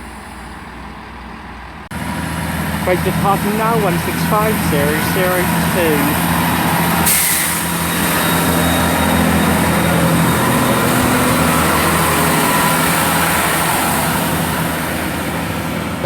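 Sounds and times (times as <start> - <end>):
diesel train engines droning: 0.0 - 16.0
rail noise: 0.0 - 16.0.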